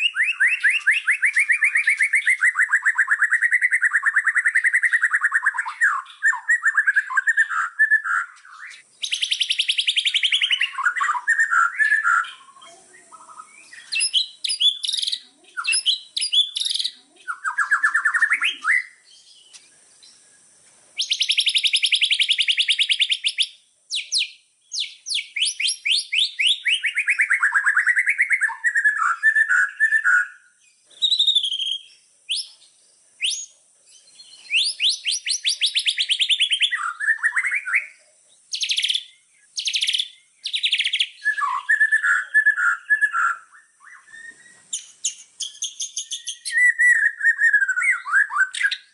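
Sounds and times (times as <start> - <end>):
songbird singing trills: 0.0 - 48.9.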